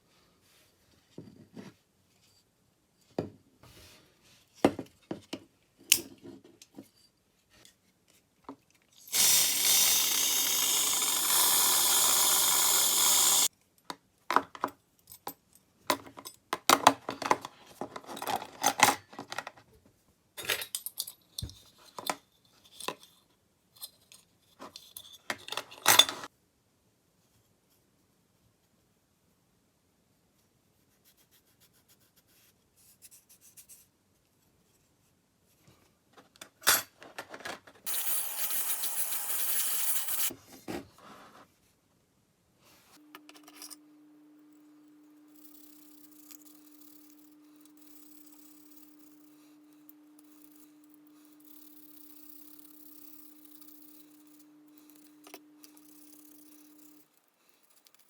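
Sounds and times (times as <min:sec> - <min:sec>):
small metal parts clicking: 0:09.1 - 0:13.5, 0:45.3 - 0:58.0.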